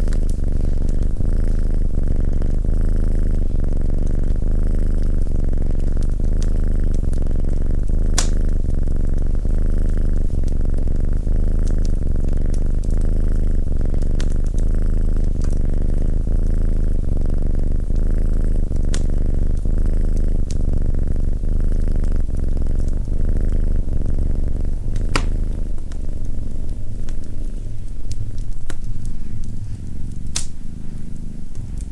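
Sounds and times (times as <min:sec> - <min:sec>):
cat purring: 0:00.0 - 0:31.9
wood fire crackling: 0:00.0 - 0:31.9.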